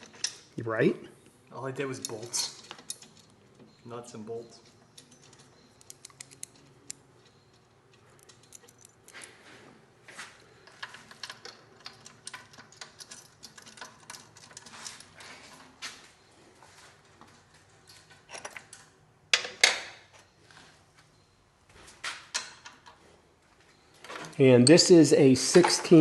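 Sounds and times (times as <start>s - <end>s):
metal clicks of nuts and bolts: 0.0s - 0.6s, 1.8s - 3.8s, 4.6s - 9.3s, 10.6s - 15.2s, 22.2s - 23.0s.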